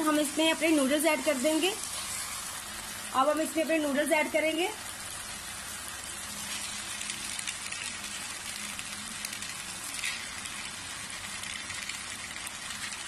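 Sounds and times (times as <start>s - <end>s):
vegetables sizzling in wok: 0.0s - 13.0s.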